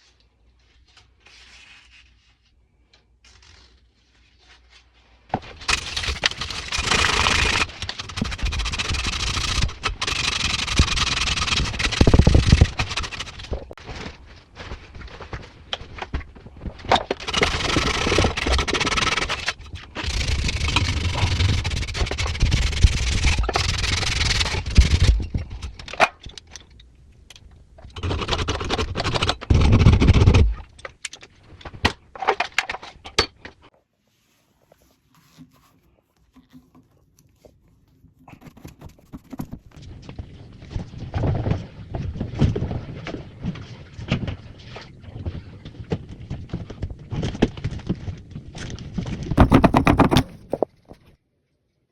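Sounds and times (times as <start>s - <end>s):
scraping in plumbing work: 5.6s - 13.8s, 16.9s - 24.7s, 34.1s - 39.8s, 49.4s - 51.1s.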